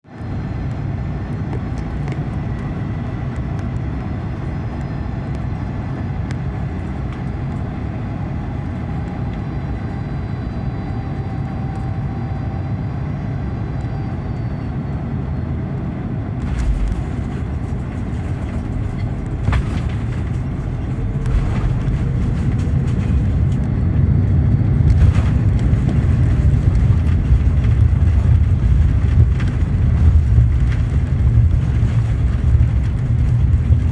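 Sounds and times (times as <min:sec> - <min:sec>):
aircraft engines and airflow rumble: 0:00.0 - 0:33.9
heavy thump: 0:16.4 - 0:23.7.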